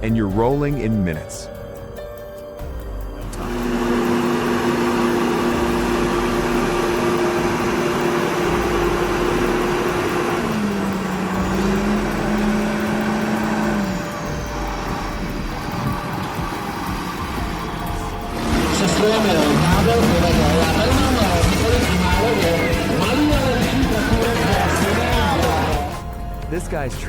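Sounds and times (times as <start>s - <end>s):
tractor engine running: 2.8s - 27.0s.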